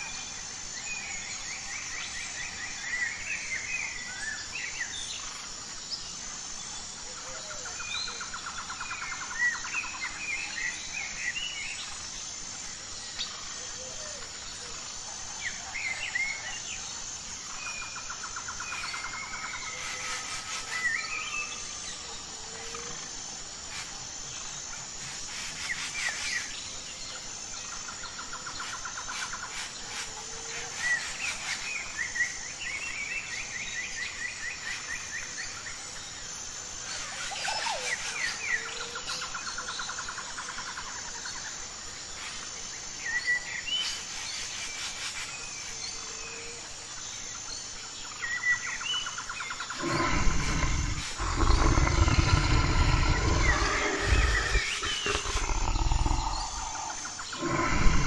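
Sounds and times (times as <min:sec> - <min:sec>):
birds chirping: 0:49.6 - 0:58.0
bears growling and roaring: 0:49.7 - 0:58.0.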